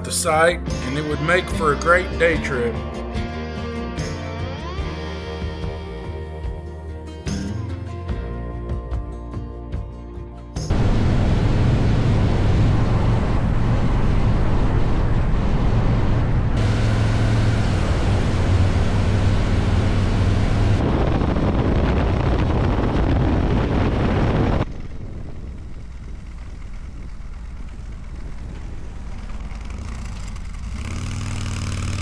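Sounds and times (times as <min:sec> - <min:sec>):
motorcycle engine running: 0:10.7 - 0:20.8, 0:24.7 - 0:32.0
wind noise on microphone: 0:10.7 - 0:29.3.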